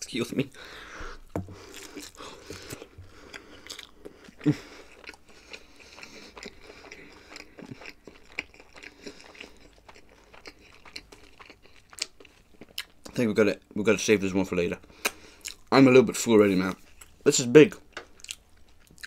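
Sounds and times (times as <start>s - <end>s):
person chewing food: 0.5s - 13.2s, 14.9s - 15.7s, 18.0s - 19.0s.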